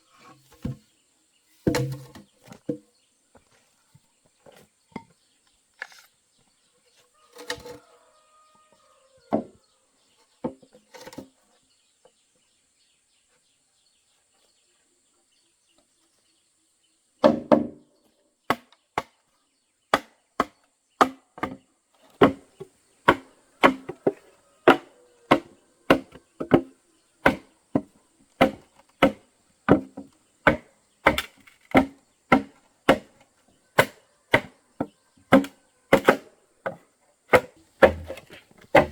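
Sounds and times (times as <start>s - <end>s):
blade chopping into wood: 22.2s - 22.4s, 23.0s - 33.2s, 33.8s - 34.6s, 35.3s - 36.3s, 37.3s - 38.9s.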